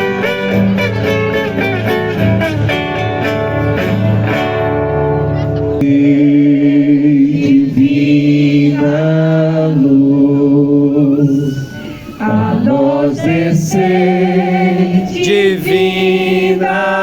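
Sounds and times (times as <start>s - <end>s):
voices singing a slow hymn: 5.8s - 17.0s.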